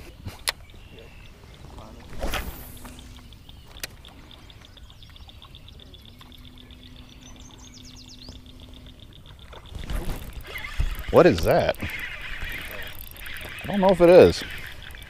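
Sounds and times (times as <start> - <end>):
bird chirping: 0.5 - 9.6, 10.4 - 15.0
faint low hum: 0.8 - 15.0
fast high ticking: 10.3 - 15.0.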